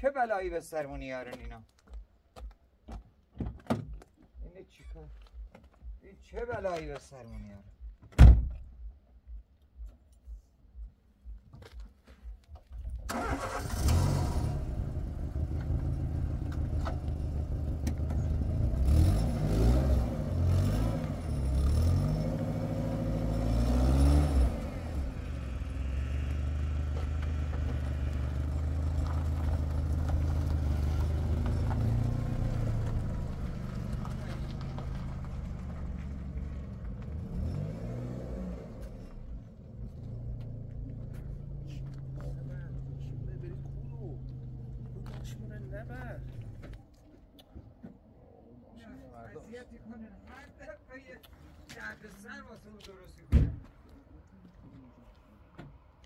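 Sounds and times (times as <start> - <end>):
car door shutting: 8.0 - 8.7
car engine starting and revving: 12.8 - 46.8.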